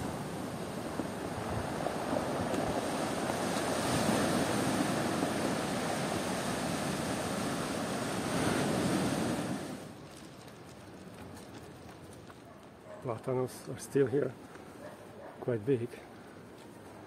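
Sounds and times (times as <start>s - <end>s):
surf breaking on shore: 0.0s - 10.0s.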